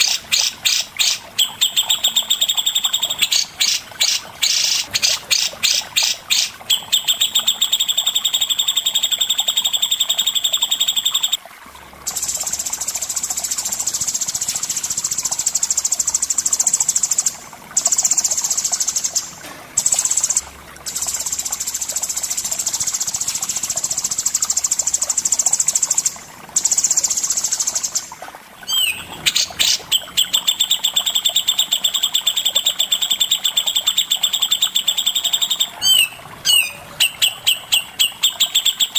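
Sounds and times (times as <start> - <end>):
songbird trilling: 28.7 - 38.9.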